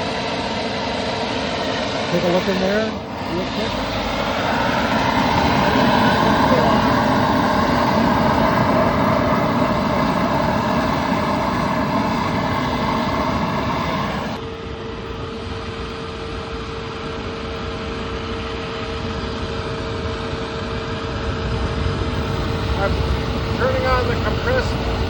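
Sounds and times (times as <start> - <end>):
steady whine: 0.0 - 14.6, 21.5 - 25.0
furnace burner rushing noise: 2.0 - 14.4, 22.1 - 25.0.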